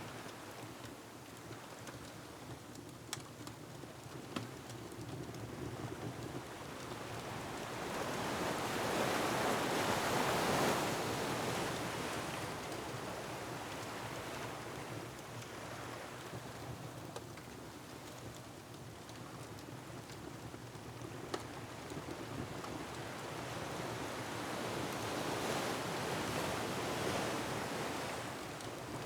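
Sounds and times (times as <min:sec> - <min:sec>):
low rumble of surf: 0:22.4 - 0:29.0.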